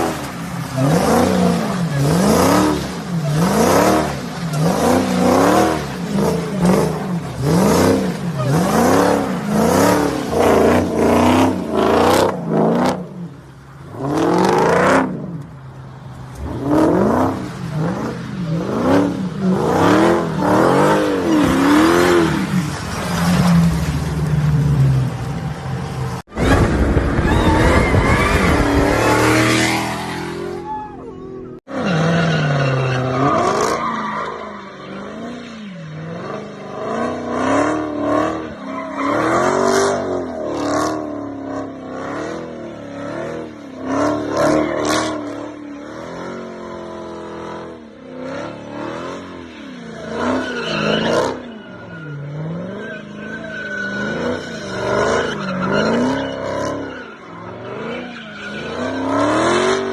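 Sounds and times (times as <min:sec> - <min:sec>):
car engine revving: 0:00.0 - 0:13.3
tires squealing: 0:00.0 - 0:15.5, 0:16.2 - 0:59.9.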